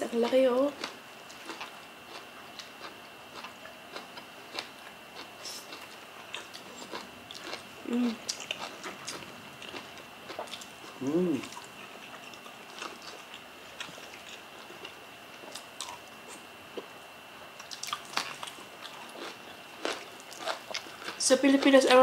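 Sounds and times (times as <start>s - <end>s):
soft chewing and lip smacks: 0.8s - 17.0s, 17.6s - 21.2s
person humming: 7.8s - 8.2s, 11.0s - 11.6s.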